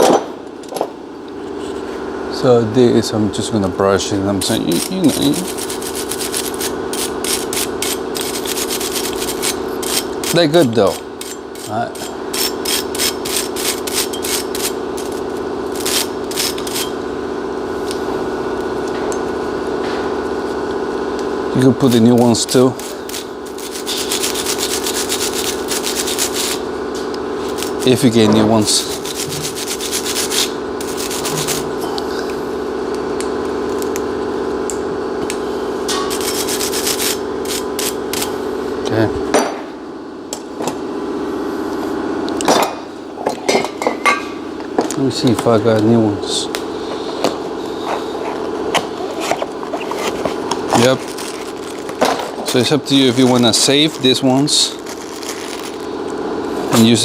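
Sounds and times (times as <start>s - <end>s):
steady low hum: 0.0s - 57.0s
hand brush scrubbing metal: 4.0s - 17.0s, 21.6s - 31.9s, 35.9s - 38.4s, 46.3s - 57.0s.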